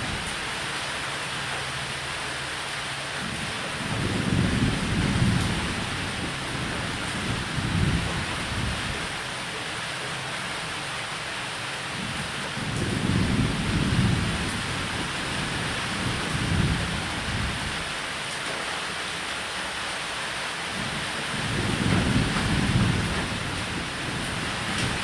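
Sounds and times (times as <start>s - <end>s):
rain hiss: 0.0s - 25.0s
thunder rolling: 3.8s - 9.1s, 12.6s - 17.8s, 21.4s - 25.0s.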